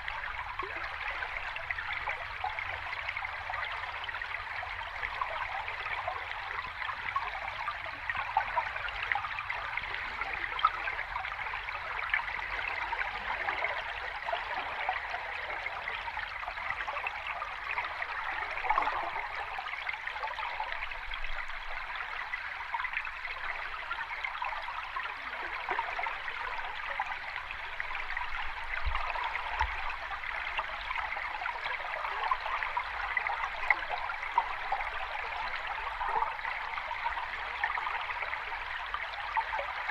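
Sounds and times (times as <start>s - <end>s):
rushing and trickling water: 0.0s - 39.9s.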